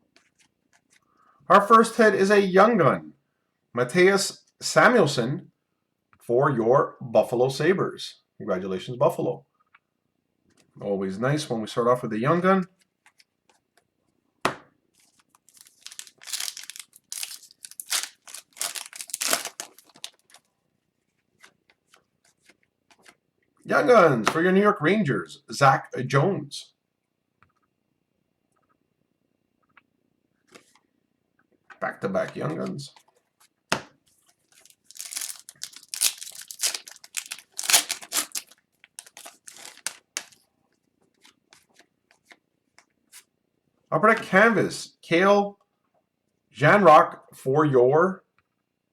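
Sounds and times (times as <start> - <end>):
wrapper being torn and crinkled: 15.4 - 20.5, 34.5 - 40.4.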